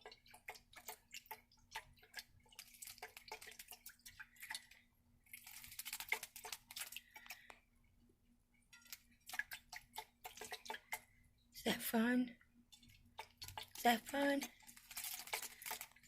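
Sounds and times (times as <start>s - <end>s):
bird splashing in water: 0.5s - 7.4s
wings flutter-splashing: 5.3s - 7.3s.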